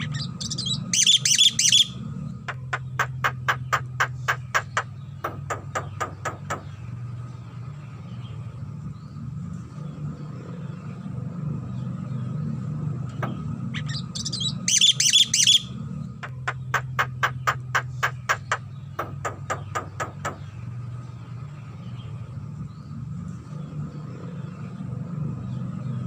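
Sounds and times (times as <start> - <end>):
bird harsh chattering: 0.0 - 6.6, 13.2 - 20.3
bird clicking notes: 2.5 - 6.7, 16.2 - 20.4.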